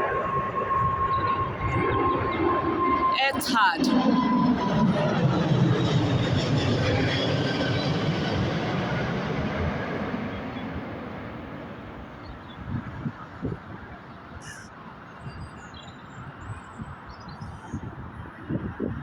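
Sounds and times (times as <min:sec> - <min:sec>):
wind buffeting microphone: 0:00.0 - 0:14.5, 0:15.1 - 0:19.0
jet airliner passing: 0:00.0 - 0:16.4
faint bird calls: 0:14.4 - 0:14.7.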